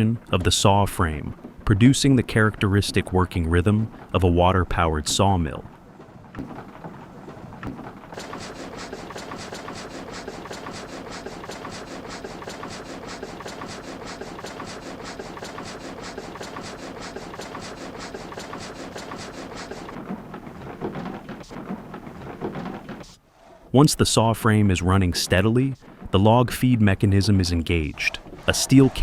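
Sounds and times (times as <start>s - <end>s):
frame saw clattering: 5.1s - 23.2s.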